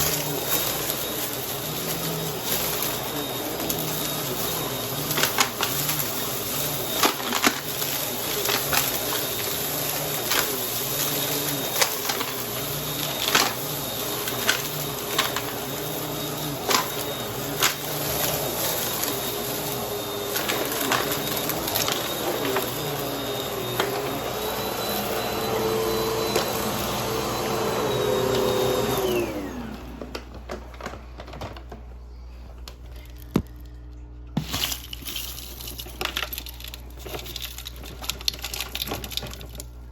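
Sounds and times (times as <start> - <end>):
vacuum cleaner running: 0.0 - 32.4.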